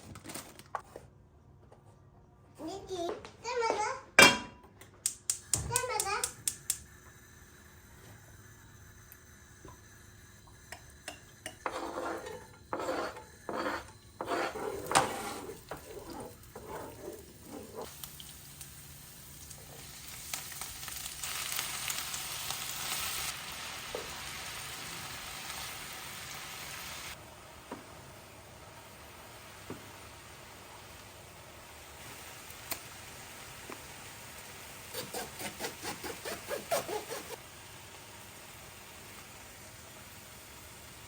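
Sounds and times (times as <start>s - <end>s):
food sizzling in hot oil: 5.4s - 27.2s
food stirred and scraped in pan: 11.2s - 18.1s.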